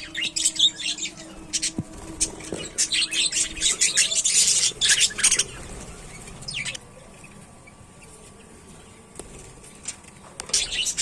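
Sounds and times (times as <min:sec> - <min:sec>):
budgerigars chirping and chattering: 0:00.0 - 0:08.9, 0:09.6 - 0:11.0.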